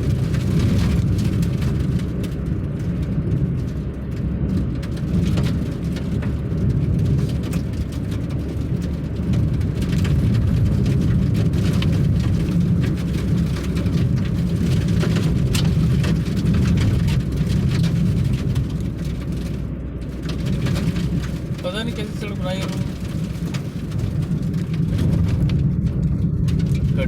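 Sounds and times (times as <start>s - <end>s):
sharp ticks and knocks: 0.0s - 27.0s
vehicle rumbling on rough road: 0.0s - 27.0s.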